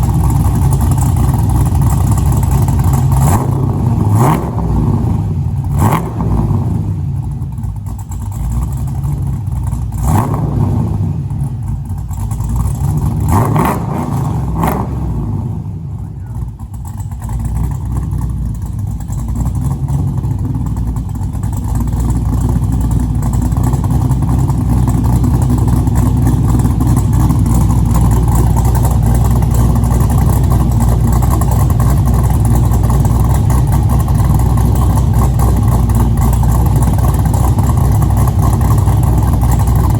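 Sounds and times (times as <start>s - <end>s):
car engine throttle blips: 0.0s - 39.9s
car exhaust running: 0.0s - 39.9s.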